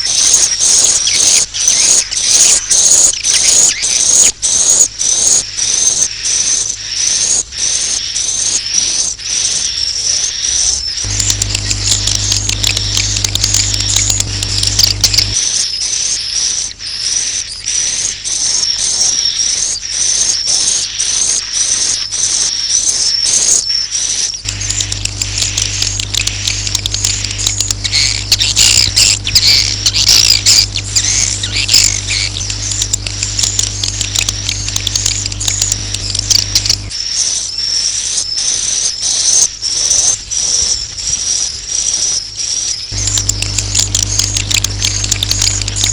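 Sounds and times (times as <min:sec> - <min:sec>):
steady low hum: 0:11.0 - 0:15.4, 0:24.4 - 0:37.0, 0:42.9 - 0:45.9
swiftlets twittering: 0:11.0 - 0:15.4, 0:24.4 - 0:37.0, 0:42.9 - 0:45.9.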